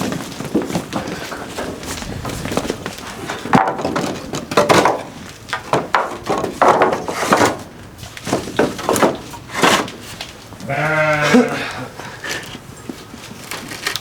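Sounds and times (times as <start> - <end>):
wooden knocks and thuds: 0.0 - 10.0.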